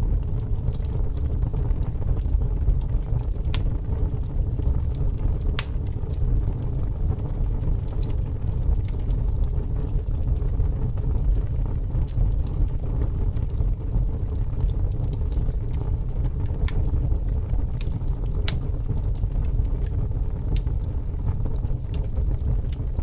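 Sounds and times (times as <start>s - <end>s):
fire crackles and pops: 0.0s - 23.0s
fire rumbling: 0.0s - 23.0s.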